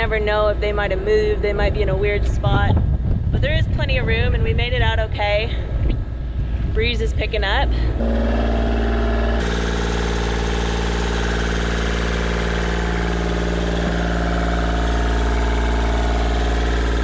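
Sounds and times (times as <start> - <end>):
boat engine droning: 7.9 - 17.0.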